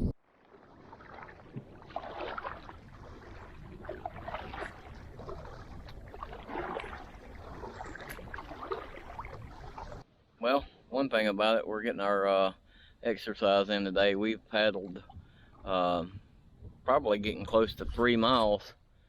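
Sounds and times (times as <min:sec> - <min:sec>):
kayak paddle splashing water: 0:00.1 - 0:10.0.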